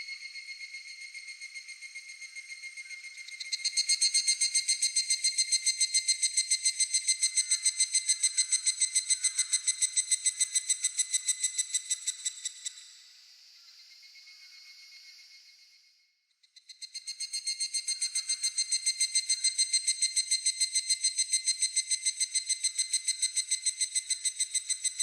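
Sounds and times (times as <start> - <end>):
cicada pulsed trill: 0.0 - 15.8, 16.5 - 25.0.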